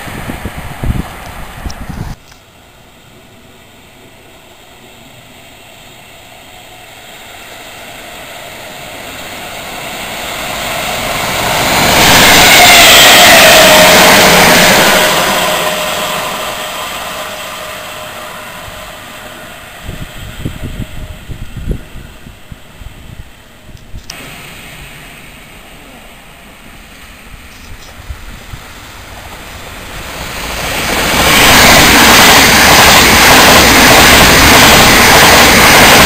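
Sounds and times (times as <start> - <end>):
train passing at speed: 0.0 - 36.0
train motor whine: 5.9 - 36.0.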